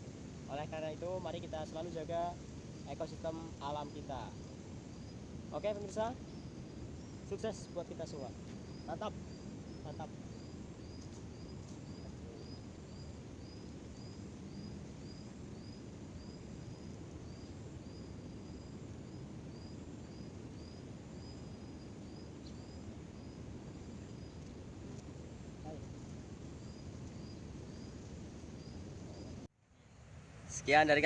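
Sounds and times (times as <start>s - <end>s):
outdoor background noise: 0.0s - 31.0s
bird chirping: 19.6s - 23.4s.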